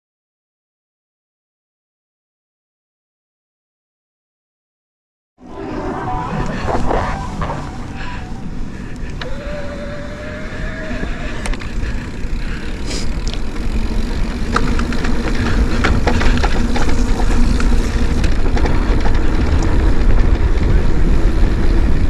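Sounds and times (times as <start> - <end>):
wind rumble on microphone: 5.5 - 22.0
bike rattling and knocking: 9.1 - 22.0.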